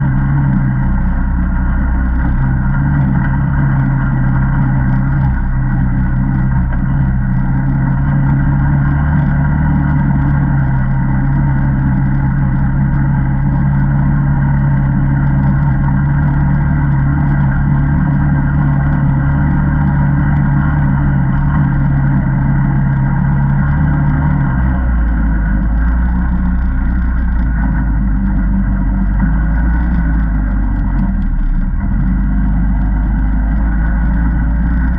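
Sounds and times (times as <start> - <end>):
atv engine running: 0.0 - 34.9.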